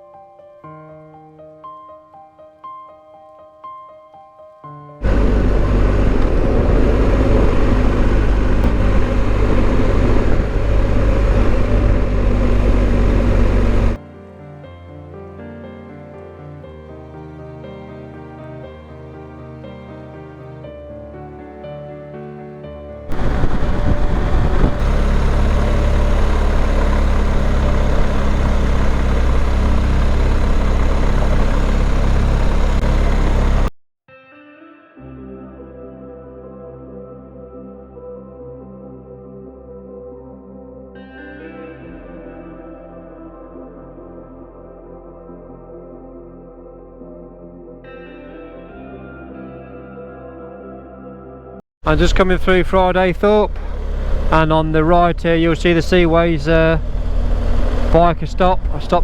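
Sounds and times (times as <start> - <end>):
deep motorcycle engine rumble: 5.0 - 14.0, 23.1 - 33.7, 51.9 - 59.0
wind rushing over microphone: 5.0 - 14.0, 23.1 - 25.1.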